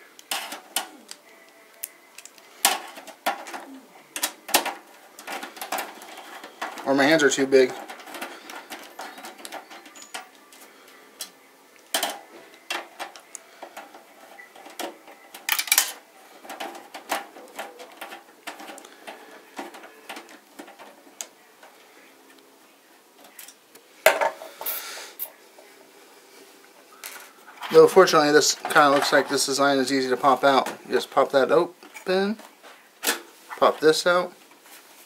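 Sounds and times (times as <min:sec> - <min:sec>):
clicks and rattles of computer parts: 0:00.2 - 0:01.2, 0:02.2 - 0:10.6, 0:11.2 - 0:21.7.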